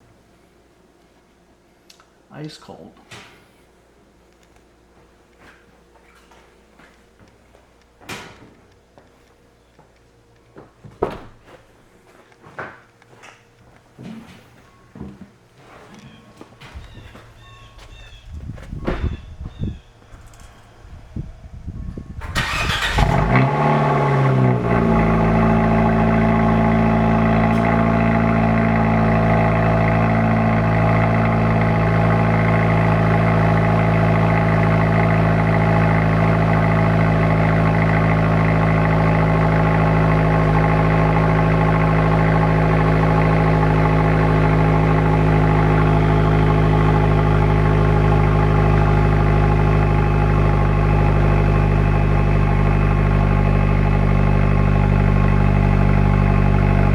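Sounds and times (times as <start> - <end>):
car engine starting and idling: 16.6 - 56.9.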